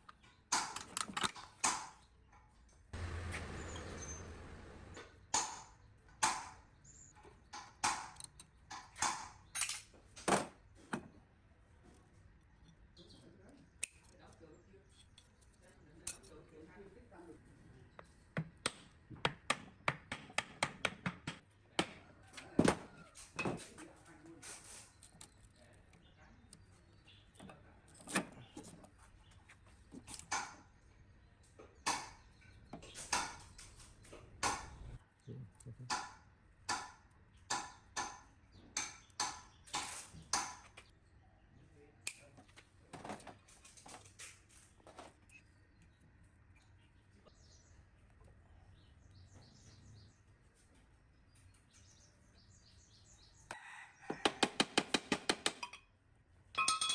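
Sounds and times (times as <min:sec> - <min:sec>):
hand tools knocking on metal: 0:56.6 - 0:56.9.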